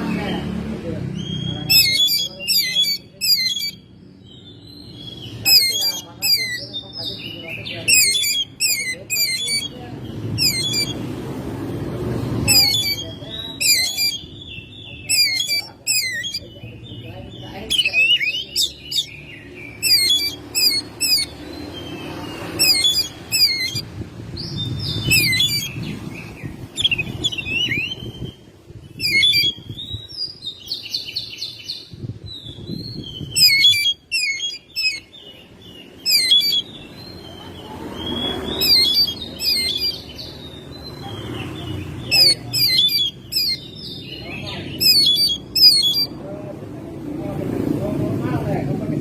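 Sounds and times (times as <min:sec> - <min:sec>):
bird singing whistled trills: 0:01.2 - 0:03.8, 0:12.4 - 0:16.7, 0:17.7 - 0:22.0, 0:22.6 - 0:23.8, 0:24.4 - 0:25.9, 0:26.8 - 0:28.4, 0:29.0 - 0:35.3, 0:36.0 - 0:37.4, 0:38.0 - 0:41.0, 0:42.2 - 0:46.2.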